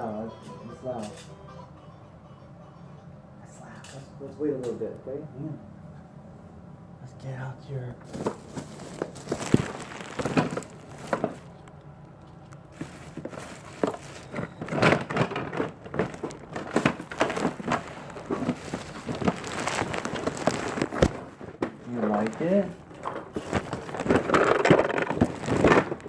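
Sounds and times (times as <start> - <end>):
crinkling: 8.0 - 26.0.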